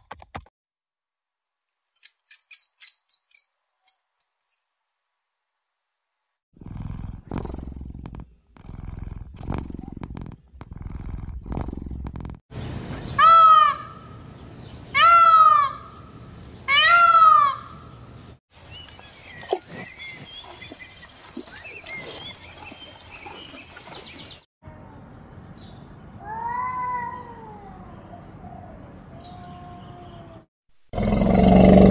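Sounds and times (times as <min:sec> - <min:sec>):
rats squeaking: 0:02.0 - 0:04.6
big cat growling: 0:06.6 - 0:12.4, 0:31.0 - 0:31.9.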